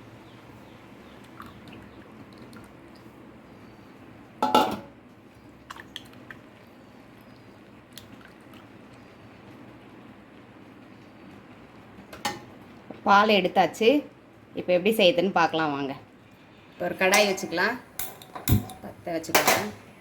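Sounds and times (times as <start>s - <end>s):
metal kitchen utensils clattering: 4.4s - 4.9s, 17.0s - 19.8s.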